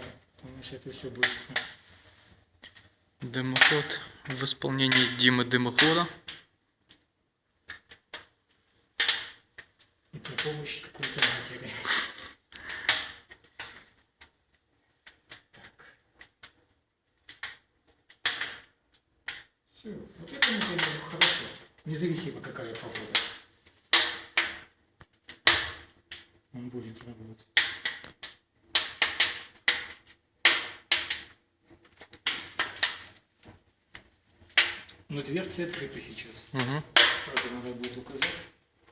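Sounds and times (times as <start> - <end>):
firewood crackling and popping: 0.0 - 38.9.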